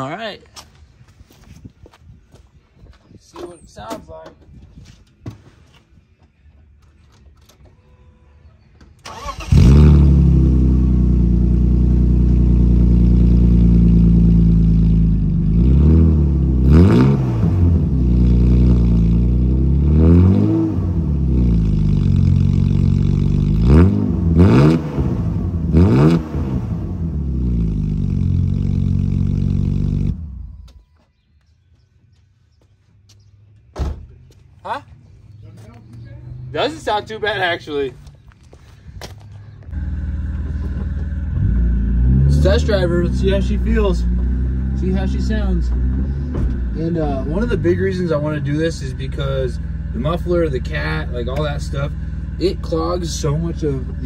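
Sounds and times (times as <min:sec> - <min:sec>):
engine cranking: 0:09.0 - 0:09.9
loud car engine idling and revving: 0:09.1 - 0:30.7, 0:39.6 - 0:54.0.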